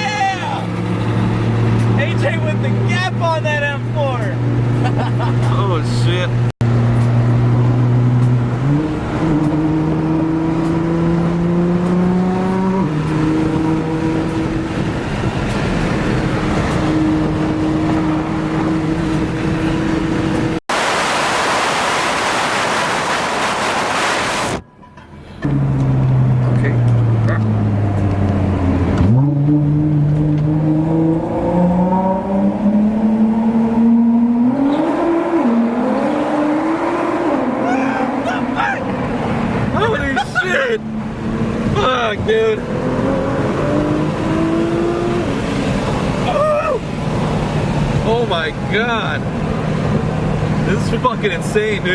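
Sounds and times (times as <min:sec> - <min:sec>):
car engine accelerating: 0:00.0 - 0:24.6, 0:25.4 - 0:51.9.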